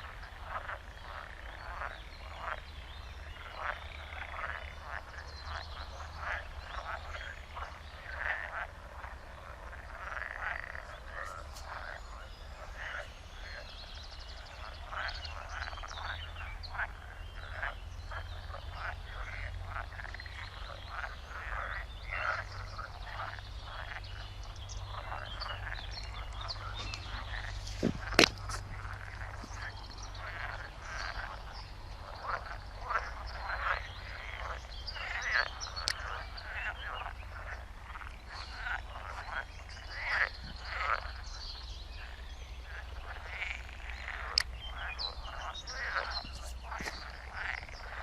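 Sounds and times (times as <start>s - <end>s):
frogs croaking: 0.0s - 48.0s.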